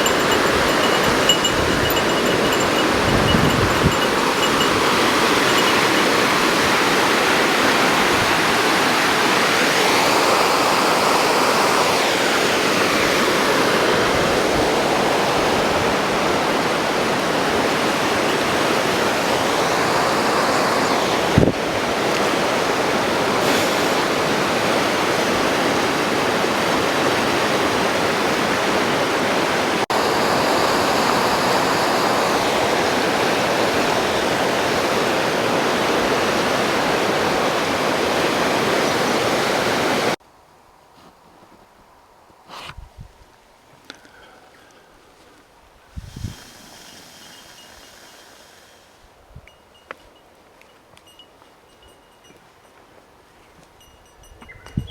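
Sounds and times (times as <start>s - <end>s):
waterfall roaring: 0.0s - 40.2s.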